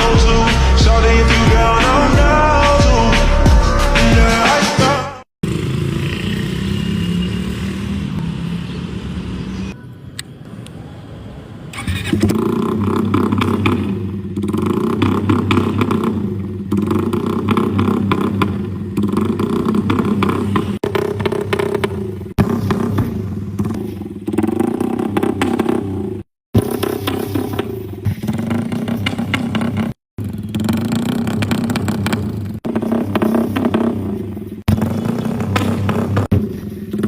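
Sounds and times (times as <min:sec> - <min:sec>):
motorcycle engine revving: 0:00.0 - 0:04.6, 0:05.4 - 0:09.8, 0:11.7 - 0:37.0.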